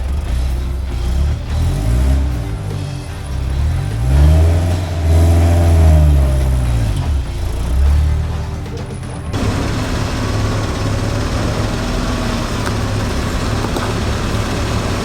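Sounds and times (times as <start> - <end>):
engine running at low speed: 0.0 - 15.0
noisy rush: 0.0 - 15.0.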